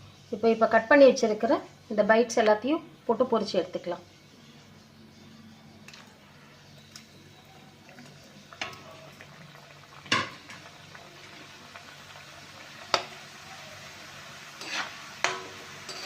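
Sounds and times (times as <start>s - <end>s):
dough deep-frying in oil: 5.8s - 16.0s.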